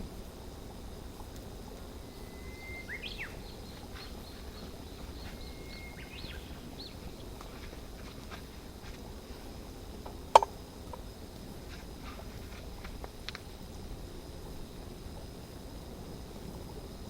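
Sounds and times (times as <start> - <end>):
low background noise: 0.0 - 17.0
songbird singing: 1.2 - 12.5.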